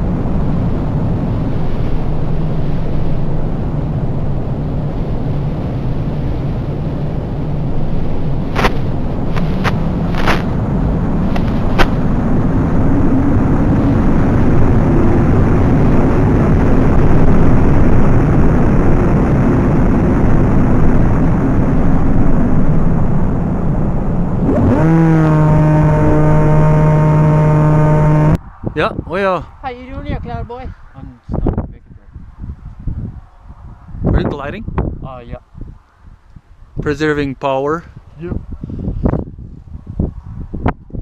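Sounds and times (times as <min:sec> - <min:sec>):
steady low hum: 0:00.0 - 0:29.0
wind buffeting microphone: 0:00.0 - 0:41.0.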